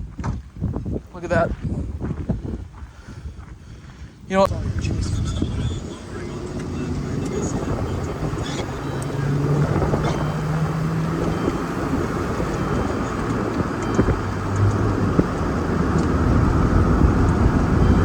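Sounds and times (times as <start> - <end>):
road and wind noise: 0.0 - 18.0
vehicle engine hum: 4.4 - 18.0.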